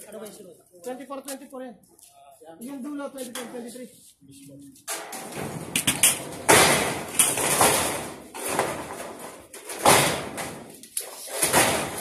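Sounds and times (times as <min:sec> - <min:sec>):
corrugated steel panels clattering: 0:04.8 - 0:12.0.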